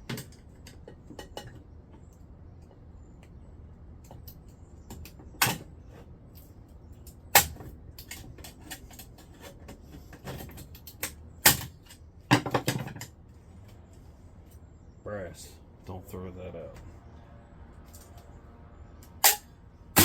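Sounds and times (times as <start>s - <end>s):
rattle of knocks: 0.0s - 1.7s, 7.4s - 13.2s.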